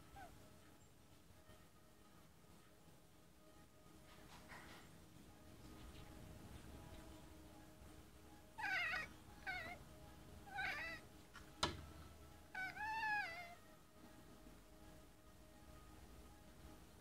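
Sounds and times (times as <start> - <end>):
cat chirping: 0.1 - 0.3, 8.5 - 11.2, 12.5 - 13.6.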